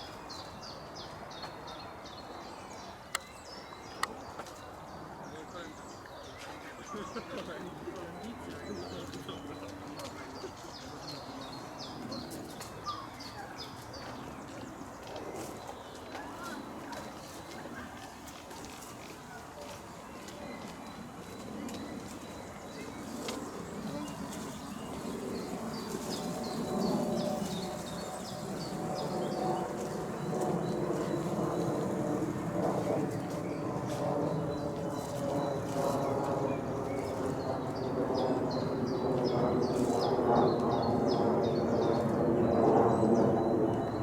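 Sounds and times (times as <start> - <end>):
outdoor background noise: 0.0 - 44.0
songbird singing: 0.0 - 44.0.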